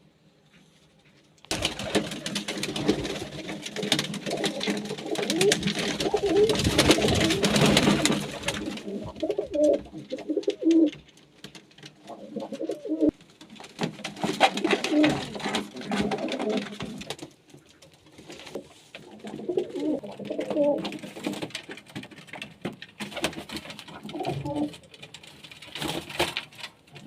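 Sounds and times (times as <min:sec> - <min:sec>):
clicks and rustling: 0:00.5 - 0:27.0
pigeons cooing: 0:01.8 - 0:11.0, 0:12.0 - 0:13.2, 0:14.4 - 0:17.0, 0:19.0 - 0:21.3, 0:23.9 - 0:24.8.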